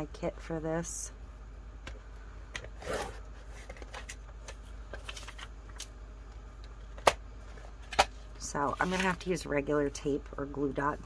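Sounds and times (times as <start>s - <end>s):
paper rustling: 4.9s - 5.5s, 8.7s - 9.2s.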